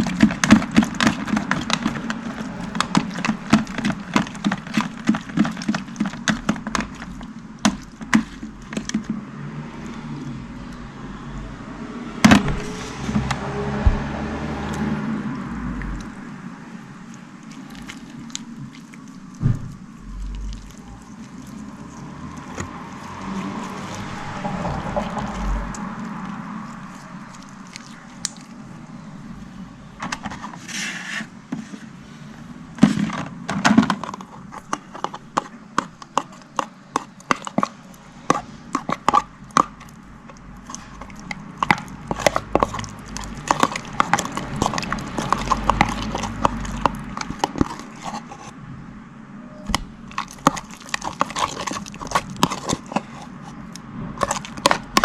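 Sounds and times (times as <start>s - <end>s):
slime squishing and popping: 34.2s - 48.0s.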